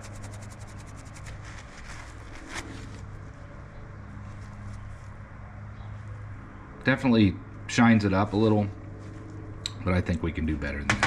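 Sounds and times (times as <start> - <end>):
cloth rubbing metal: 0.0 - 3.1
low steady hum: 0.0 - 11.0.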